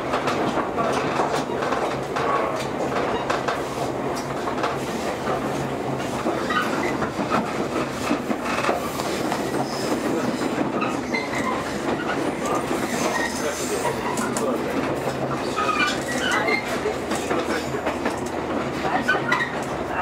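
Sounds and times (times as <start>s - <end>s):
rail-joint clatter: 0.0s - 20.0s
train wheels rumbling on rail: 0.0s - 20.0s.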